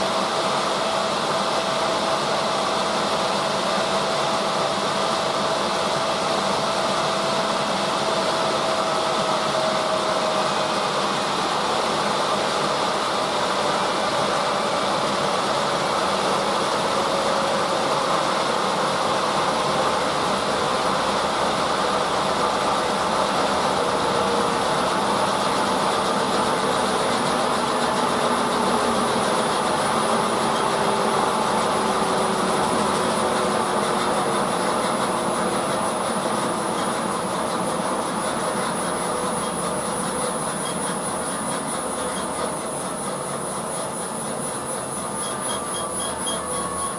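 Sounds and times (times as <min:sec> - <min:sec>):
washing machine running: 0:00.0 - 0:46.9.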